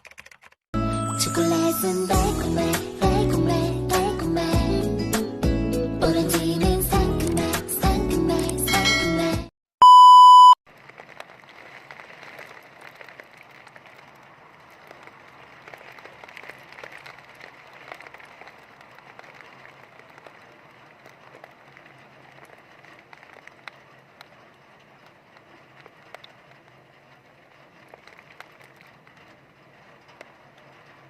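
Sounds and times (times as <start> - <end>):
high electronic beep: 9.8 - 10.6
heavy rain: 10.8 - 30.8.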